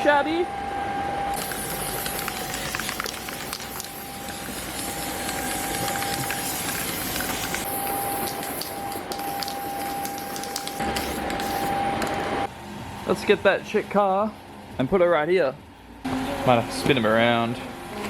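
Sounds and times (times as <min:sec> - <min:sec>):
machine hissing and whining: 0:00.8 - 0:13.2.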